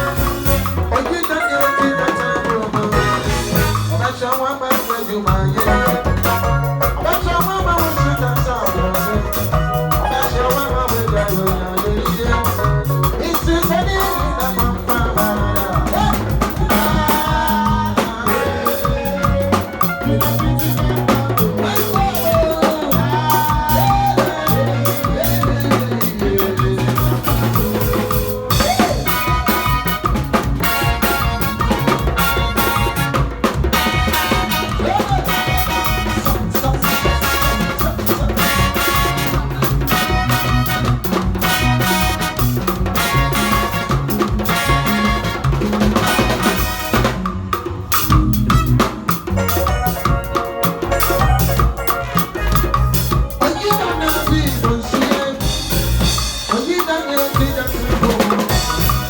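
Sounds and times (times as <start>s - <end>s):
loud dance music: 0.0s - 4.3s, 17.9s - 47.2s
drum kit beat: 0.0s - 59.0s.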